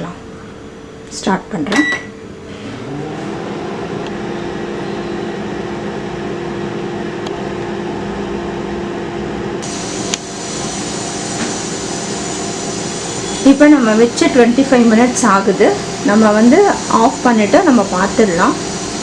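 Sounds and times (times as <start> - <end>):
microwave oven humming: 0.0 - 19.0
high hiss: 9.6 - 19.0.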